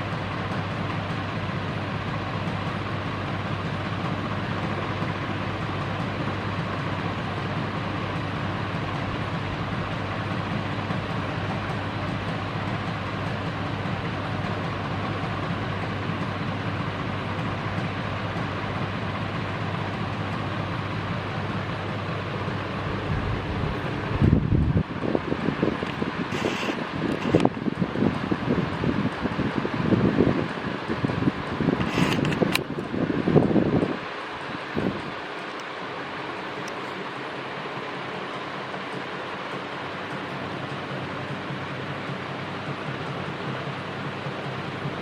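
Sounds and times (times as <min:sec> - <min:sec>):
ceiling fan running: 0:00.0 - 0:45.0.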